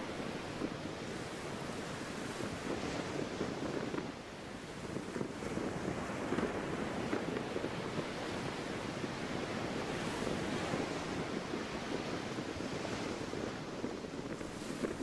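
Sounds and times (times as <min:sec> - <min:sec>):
sea waves washing: 0:00.0 - 0:15.0
wind: 0:00.0 - 0:15.0.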